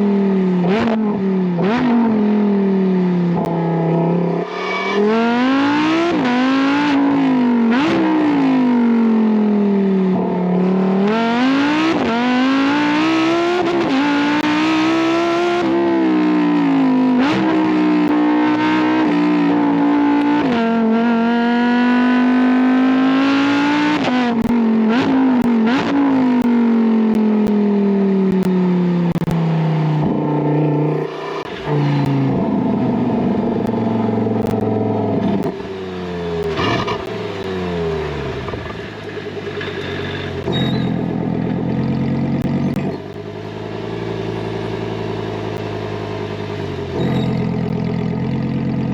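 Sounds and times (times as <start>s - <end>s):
sports car engine revving hard: 0.6s - 2.5s, 3.3s - 9.3s, 10.1s - 27.4s, 29.1s - 48.9s
exhaust pops and crackles: 24.0s - 27.6s, 28.3s - 30.2s, 33.4s - 35.7s, 36.4s - 37.6s, 38.2s - 43.4s.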